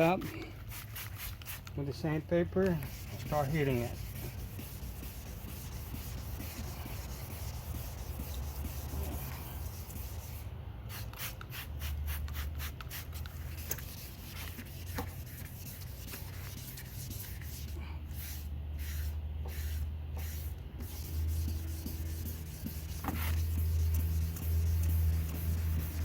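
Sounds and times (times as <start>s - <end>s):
sandpaper rubbing plastic: 2.6s - 26.0s.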